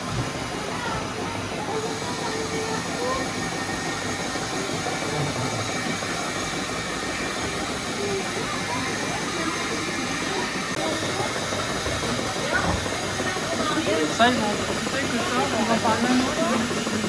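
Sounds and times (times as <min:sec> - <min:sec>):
milking machine hissing and humming: 0:00.0 - 0:17.0.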